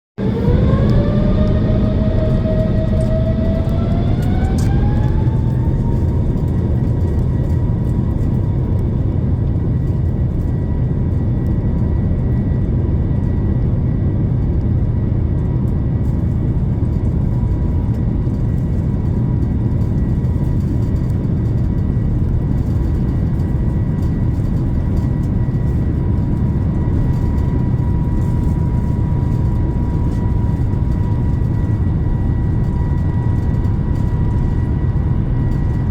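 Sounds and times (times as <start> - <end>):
jet engines spooling up: 0.2 - 13.3.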